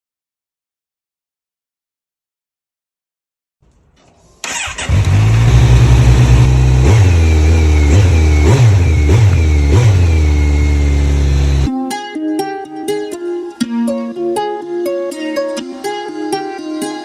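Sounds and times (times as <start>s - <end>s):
engine starting and running: 4.0s - 11.7s
engine revving: 4.4s - 11.7s.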